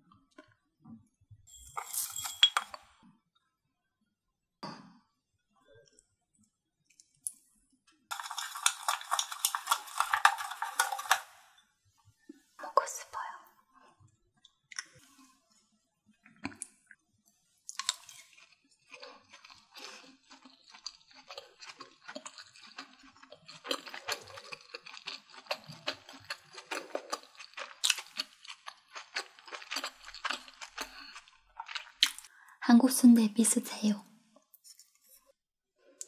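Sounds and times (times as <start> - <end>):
wet crunchy chewing: 8.1 - 11.4, 17.7 - 32.3.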